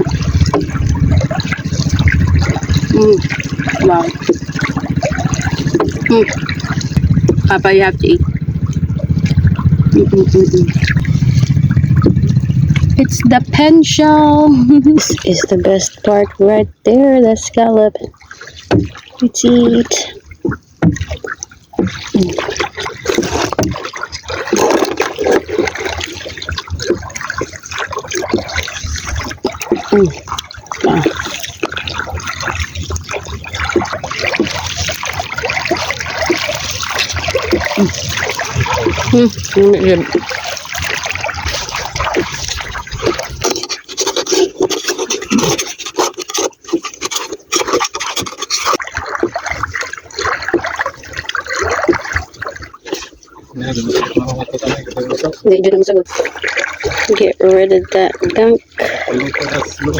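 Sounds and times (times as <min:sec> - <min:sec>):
water lapping against boat hull: 0:00.0 - 0:59.9
scraping and rubbing on shell: 0:42.9 - 0:48.8.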